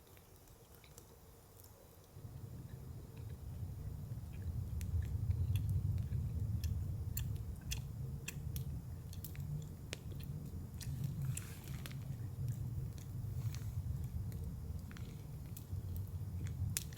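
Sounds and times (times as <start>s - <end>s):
wood fire crackling: 0.0s - 16.9s
low steady rumble: 2.0s - 16.9s.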